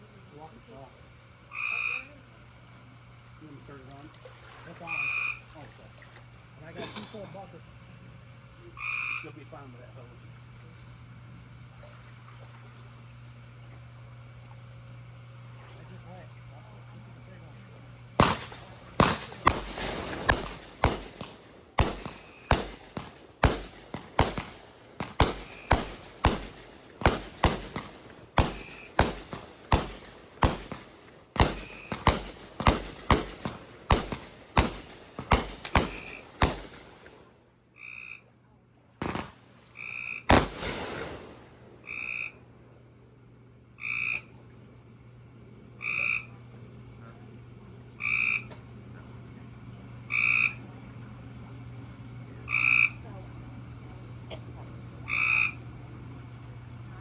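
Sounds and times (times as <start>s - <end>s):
low steady hum: 0.0s - 57.0s
frog croaking: 1.4s - 2.5s, 4.7s - 6.0s, 8.6s - 9.8s, 31.4s - 36.6s, 37.7s - 38.4s, 39.7s - 40.4s, 41.8s - 42.4s, 43.8s - 44.4s, 45.7s - 46.4s, 48.0s - 48.6s, 50.0s - 50.8s, 52.5s - 53.1s, 55.0s - 55.6s
fireworks bangs: 17.4s - 37.3s, 39.0s - 41.9s.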